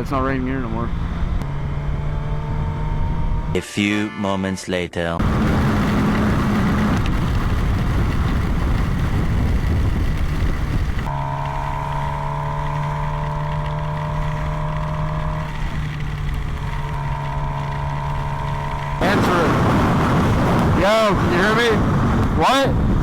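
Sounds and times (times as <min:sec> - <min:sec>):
motorcycle riding: 0:00.0 - 0:03.6, 0:05.2 - 0:23.0
wind on microphone: 0:05.2 - 0:23.0.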